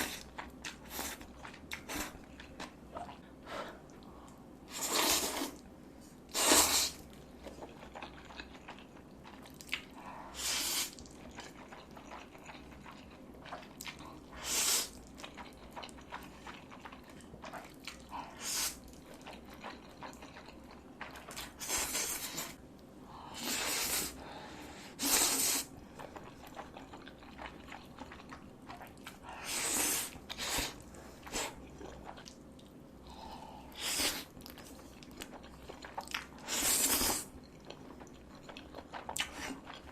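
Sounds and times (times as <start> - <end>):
person chewing and crunching: 7.0 - 10.0, 10.8 - 22.6, 25.0 - 39.9.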